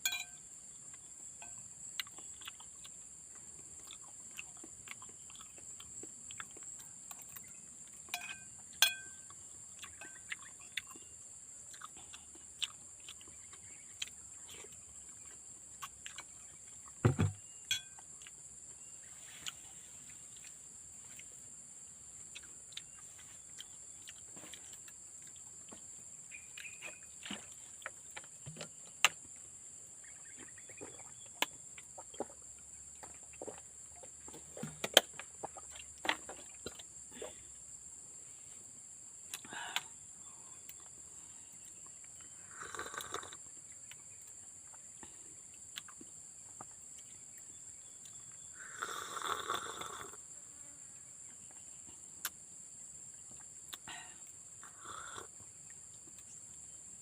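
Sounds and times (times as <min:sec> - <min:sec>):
insects droning: 0:00.0 - 0:57.0
low thump: 0:17.0 - 0:17.4
bird chirps: 0:26.3 - 0:27.2, 0:30.0 - 0:31.5.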